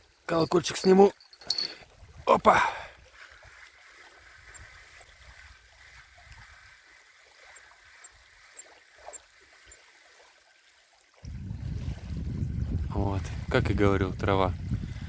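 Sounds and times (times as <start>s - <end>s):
small splashes: 0.0s - 12.3s
water lapping and trickling: 0.0s - 15.0s
wind rumble on microphone: 1.8s - 2.3s, 11.2s - 15.0s.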